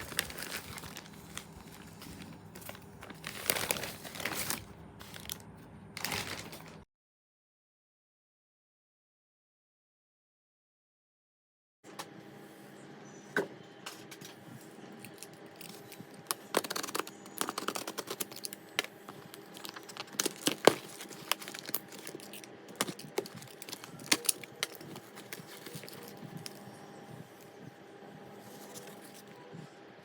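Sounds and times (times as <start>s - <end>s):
plastic packaging clicking: 0.0s - 5.4s, 6.0s - 6.8s, 15.1s - 26.6s.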